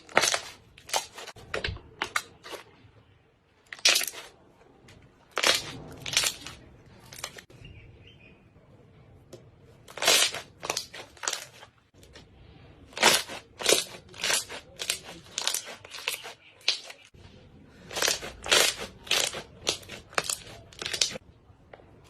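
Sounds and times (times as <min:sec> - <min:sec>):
slime squishing crackly: 0:00.0 - 0:02.8, 0:03.5 - 0:07.5, 0:09.8 - 0:12.2, 0:12.8 - 0:21.2.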